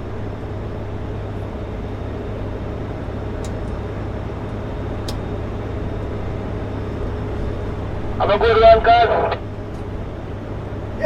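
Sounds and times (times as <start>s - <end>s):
truck engine drone in cab: 0.0s - 11.0s
road noise: 1.0s - 11.0s
faint light ticks: 3.4s - 3.8s.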